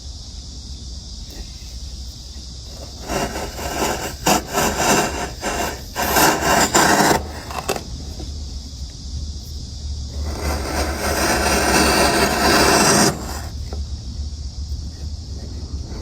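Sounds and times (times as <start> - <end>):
steady low hum: 0.0 - 16.0
hand tool scraping wood: 2.7 - 8.3, 10.2 - 13.8.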